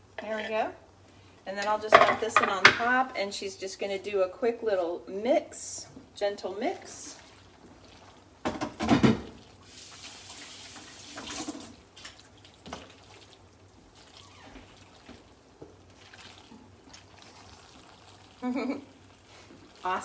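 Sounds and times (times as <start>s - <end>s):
wet squelchy mixing in a pot: 6.0s - 20.0s.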